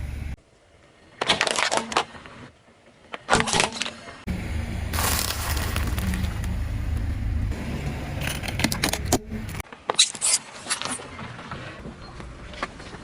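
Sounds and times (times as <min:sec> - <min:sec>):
car rumble: 0:04.3 - 0:09.6
items cracking under tyre: 0:05.0 - 0:07.1.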